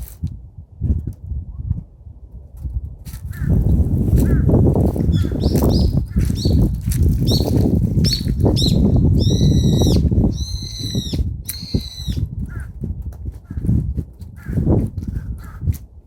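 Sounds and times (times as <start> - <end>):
birds calling: 4.2 - 12.8.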